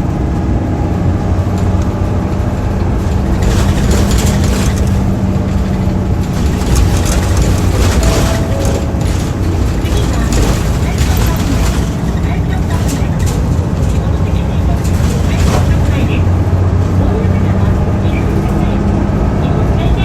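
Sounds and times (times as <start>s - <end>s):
bus engine hum: 0.0s - 20.0s
rushing noise: 6.2s - 16.2s.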